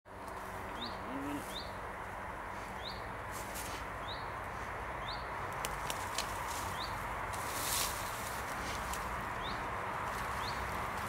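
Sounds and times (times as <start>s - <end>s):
steady outdoor hiss: 0.1s - 11.0s.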